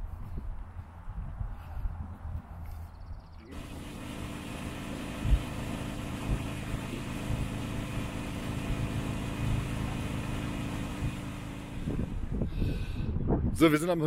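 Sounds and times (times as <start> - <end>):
motorcycle engine running: 3.5 - 12.6.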